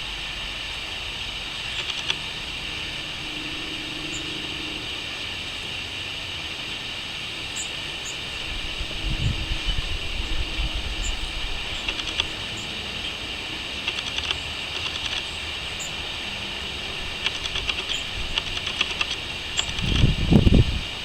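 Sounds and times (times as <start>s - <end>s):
low rumble: 0.0s - 13.7s
crickets chirping: 0.0s - 21.0s
faint high bird calls: 1.2s - 20.0s.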